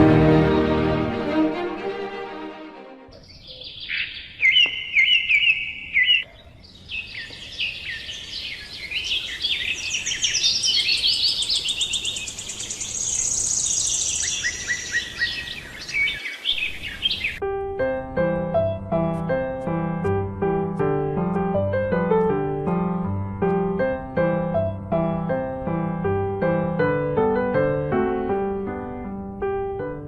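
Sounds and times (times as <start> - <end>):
piano music: 0.0 - 3.1, 17.4 - 30.0
birds chirping and trilling: 3.1 - 17.4
faint outdoor hiss: 6.4 - 17.6.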